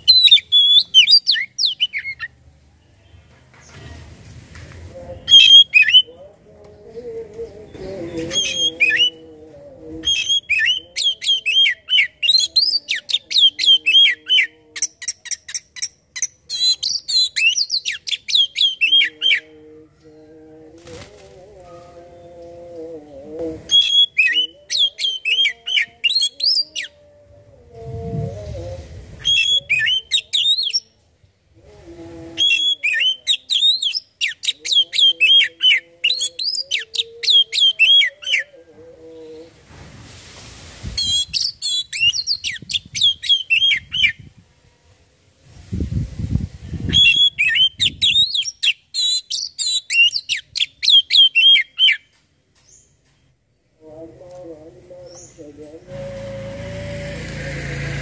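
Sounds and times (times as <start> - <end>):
low held tone: 55.8 - 58.0.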